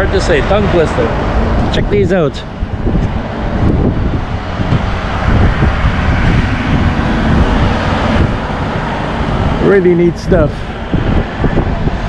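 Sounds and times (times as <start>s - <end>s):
highway traffic rumble: 0.0s - 12.0s.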